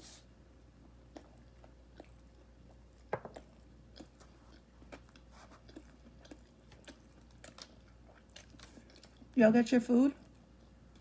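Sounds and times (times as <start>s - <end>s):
chewing with wet mouth clicks: 0.8s - 9.4s.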